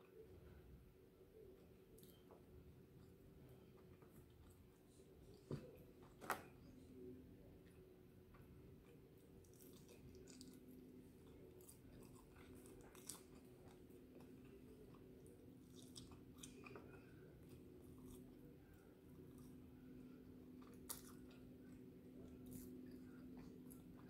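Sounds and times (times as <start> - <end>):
faint steady hum: 0.0 - 24.0
chewing and biting chicken wings: 9.4 - 17.0.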